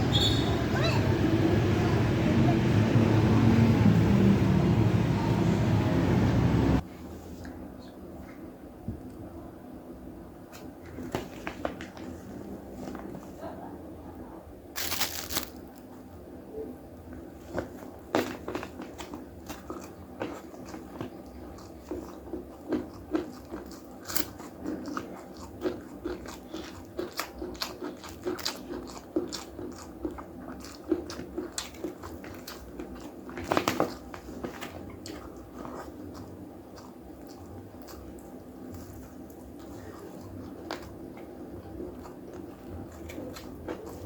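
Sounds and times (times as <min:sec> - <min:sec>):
person chewing: 0:14.8 - 0:15.8, 0:17.6 - 0:44.0
crisp crunches of food: 0:14.8 - 0:15.9, 0:18.3 - 0:41.0.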